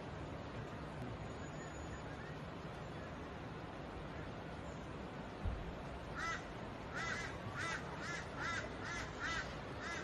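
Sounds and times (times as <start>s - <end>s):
steady rushing noise: 0.0s - 10.0s
bird calling: 6.2s - 10.0s.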